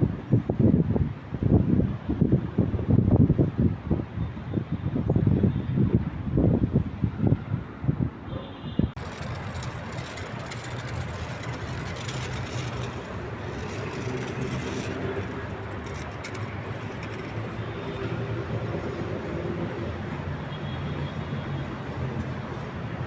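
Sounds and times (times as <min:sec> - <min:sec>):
city traffic noise: 0:00.0 - 0:23.0
vehicle engine humming: 0:09.0 - 0:23.0.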